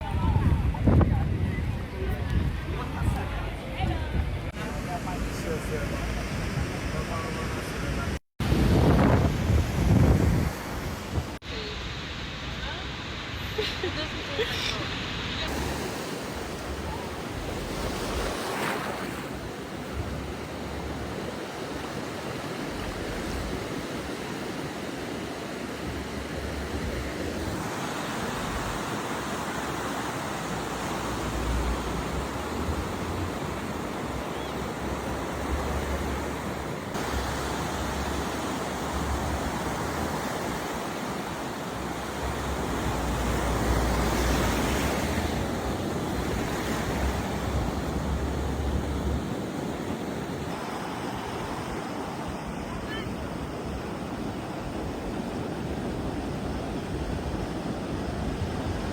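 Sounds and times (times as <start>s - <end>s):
wind rumbling on microphone: 0.0s - 27.7s
ocean surf washing onto beach: 0.0s - 58.9s.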